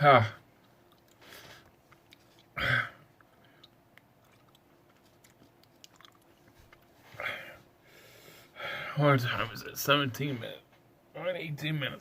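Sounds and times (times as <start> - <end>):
wet mouth clicks: 0.6 - 1.2, 3.2 - 6.9
man chewing: 0.6 - 7.2.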